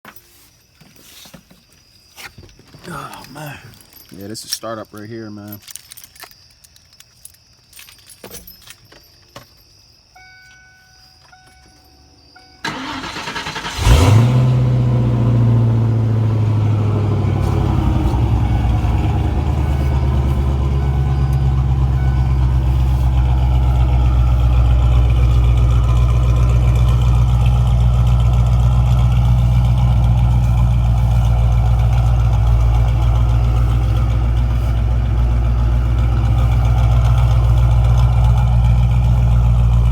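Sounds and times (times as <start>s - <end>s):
car starter cranking: 12.6s - 39.9s
car engine idling loudly: 12.7s - 39.9s.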